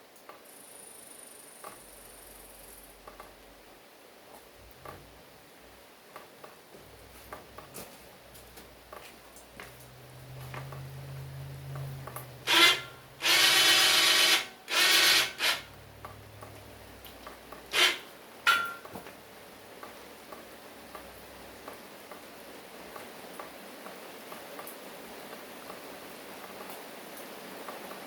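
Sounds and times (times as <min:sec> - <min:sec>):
handheld power tool bursts: 0:12.5 - 0:15.8, 0:17.7 - 0:18.8.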